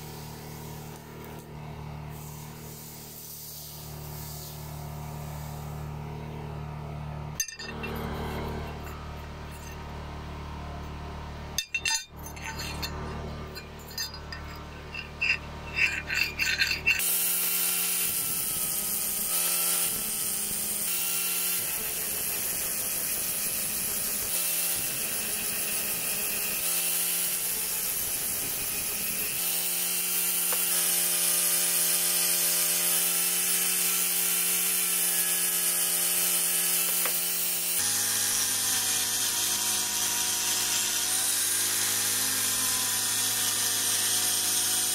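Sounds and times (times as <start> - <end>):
angle grinder whining: 7.3 - 10.8, 11.6 - 44.9
steel blade clinking on metal: 7.4 - 9.8, 11.6 - 17.1.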